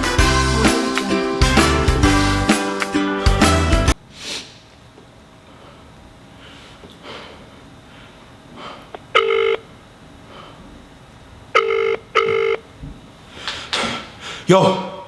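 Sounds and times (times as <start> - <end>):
telephone ringing tone: 9.1 - 9.7, 11.5 - 12.7.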